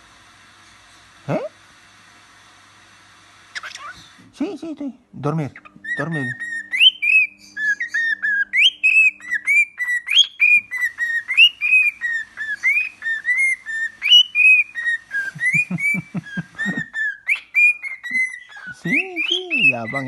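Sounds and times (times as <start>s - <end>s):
bird whistling a tune: 5.8s - 20.0s.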